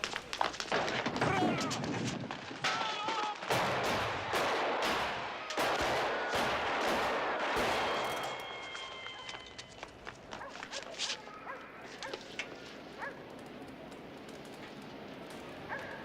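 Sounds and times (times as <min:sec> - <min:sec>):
rapid gunfire: 0:03.4 - 0:08.0.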